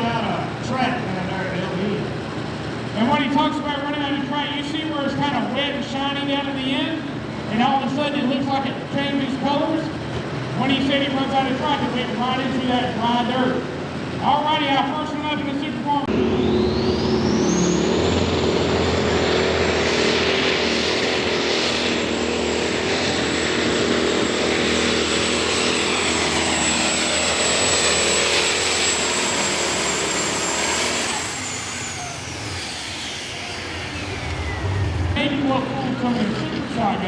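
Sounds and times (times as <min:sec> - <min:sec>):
diesel tractor engine under load: 0:00.0 - 0:37.0
high turbo whistle: 0:16.2 - 0:18.5, 0:24.6 - 0:35.5.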